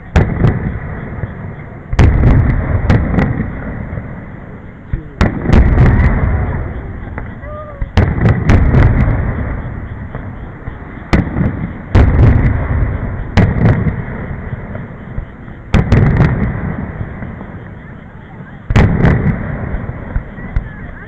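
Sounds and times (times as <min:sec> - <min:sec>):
firework shells booming: 0:00.0 - 0:21.0.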